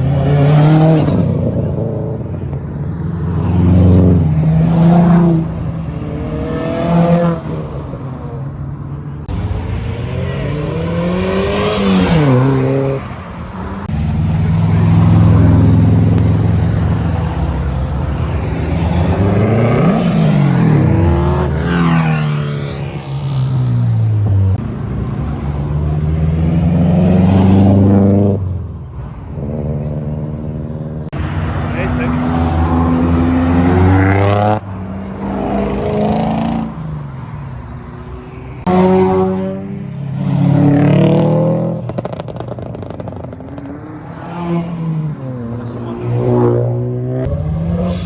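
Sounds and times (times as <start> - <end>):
engine revving: 9.3 - 28.5, 31.1 - 36.8, 38.6 - 48.0.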